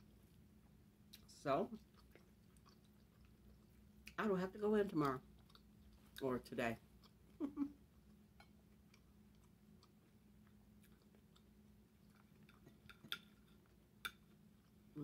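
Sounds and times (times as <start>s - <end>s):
chewing with wet mouth clicks: 1.1s - 4.2s, 5.0s - 6.3s, 6.9s - 7.4s, 8.0s - 14.9s.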